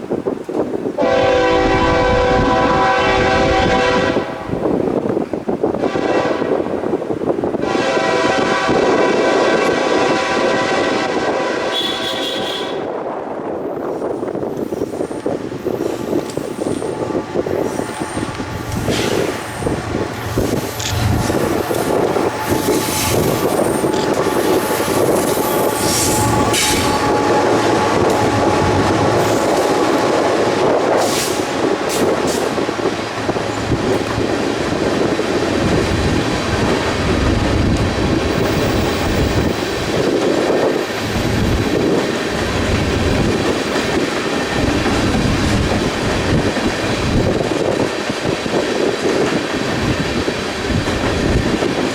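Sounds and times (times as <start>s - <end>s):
train wheels clattering on rails: 13.6s - 51.9s
high wheel squeals: 14.6s - 30.0s.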